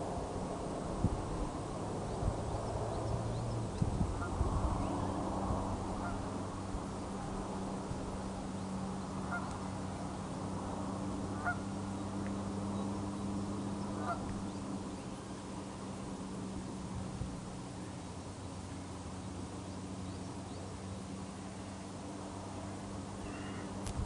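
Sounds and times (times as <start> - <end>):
steady low hum: 0.0 - 24.0
faint short bird calls: 23.2 - 23.8.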